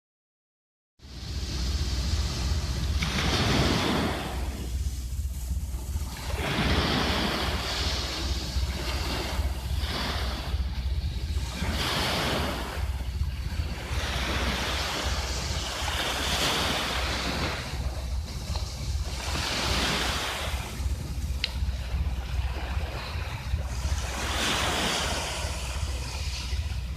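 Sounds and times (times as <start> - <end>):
sea waves washing onto beach: 1.0 - 26.9
wind rumbling on microphone: 1.0 - 26.9.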